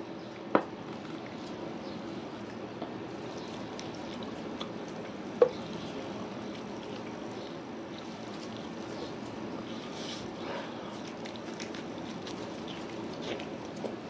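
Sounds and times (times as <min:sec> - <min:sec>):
person chewing wetly: 0:00.3 - 0:14.0.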